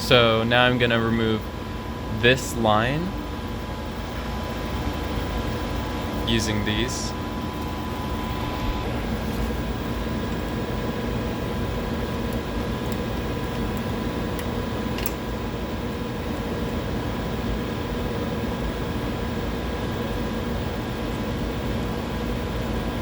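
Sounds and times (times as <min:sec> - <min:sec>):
laboratory equipment humming: 0:00.0 - 0:23.0.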